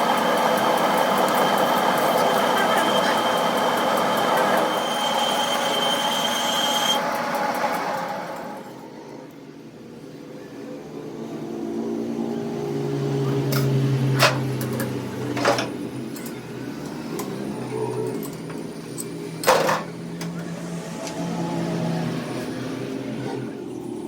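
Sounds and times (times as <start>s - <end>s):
motor humming: 0.0s - 8.8s.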